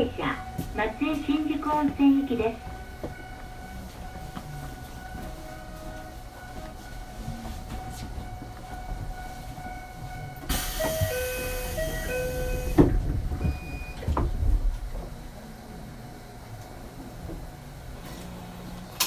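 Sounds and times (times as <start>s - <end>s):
sliding doors knocking shut: 10.5s - 14.9s.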